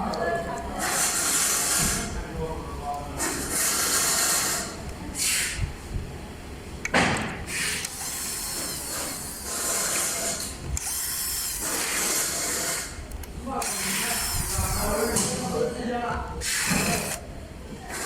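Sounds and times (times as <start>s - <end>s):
power tool working fasteners: 7.5s - 12.9s, 13.6s - 15.2s, 16.4s - 17.2s.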